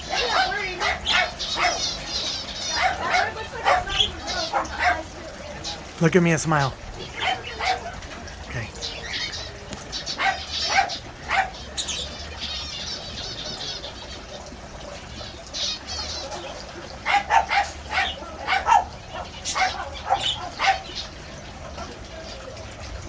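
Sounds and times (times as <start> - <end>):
birds chirping and chattering: 0.0 - 23.0
sharp bird calls: 15.2 - 21.4
rapid bird warbling: 15.3 - 21.3.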